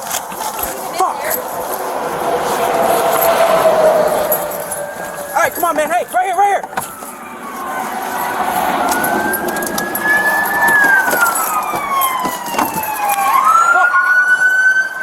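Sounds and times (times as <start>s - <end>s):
emergency siren wailing: 0.3s - 15.0s
sharp clicks and knocks: 5.3s - 7.2s, 8.0s - 13.3s.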